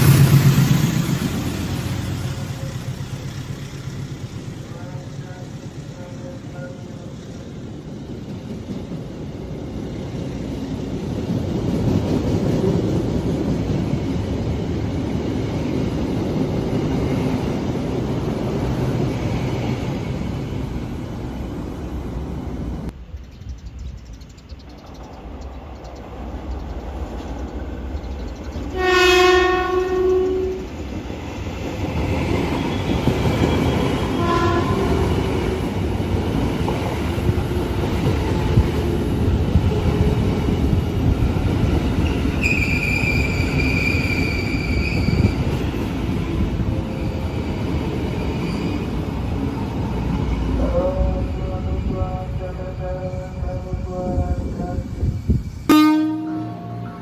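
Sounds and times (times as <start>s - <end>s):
wheels clacking on rails: 0.0s - 23.0s, 24.7s - 52.3s
train rumbling past: 0.0s - 57.0s
train horn: 4.7s - 7.1s, 28.7s - 30.7s, 33.6s - 35.6s, 50.6s - 55.0s, 55.7s - 57.0s.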